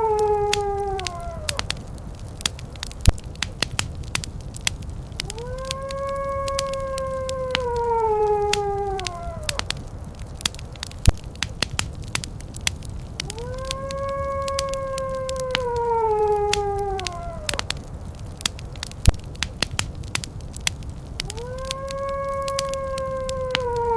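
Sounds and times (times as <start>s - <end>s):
wolf howling: 0.0s - 2.5s, 5.1s - 10.9s, 13.2s - 18.9s, 21.0s - 23.9s
fireplace crackling and popping: 0.0s - 23.9s.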